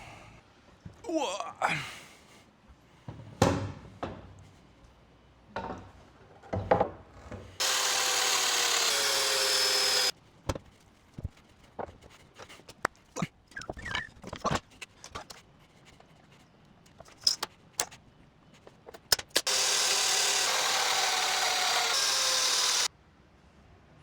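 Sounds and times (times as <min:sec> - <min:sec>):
power tool running: 0:07.6 - 0:10.1, 0:19.4 - 0:22.9.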